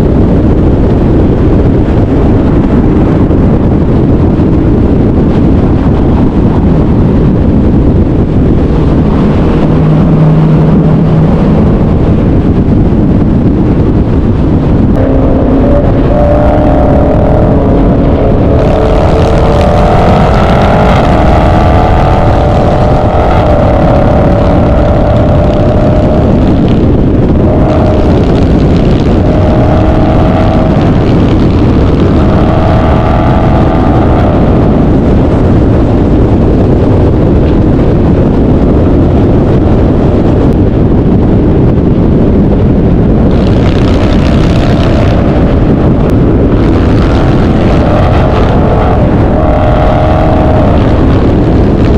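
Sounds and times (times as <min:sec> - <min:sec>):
car engine revving: 0:00.1 - 0:38.3, 0:43.2 - 0:51.9.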